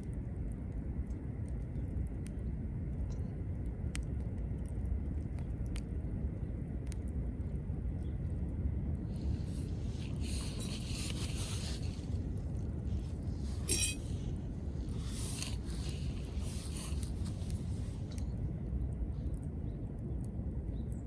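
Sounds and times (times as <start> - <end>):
wood fire crackling: 0.0 - 21.0
short ringing clink: 13.6 - 14.1.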